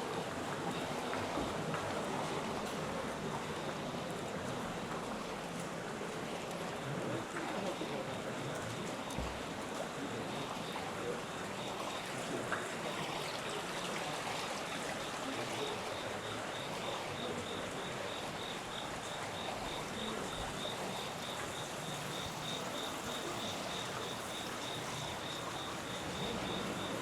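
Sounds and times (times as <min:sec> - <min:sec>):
flowing water rushing: 0:00.0 - 0:27.0
insect chirping: 0:15.1 - 0:27.0.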